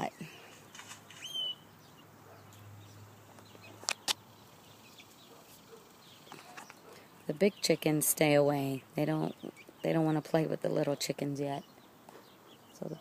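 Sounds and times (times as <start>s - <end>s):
high bird chirp: 0.0s - 13.0s.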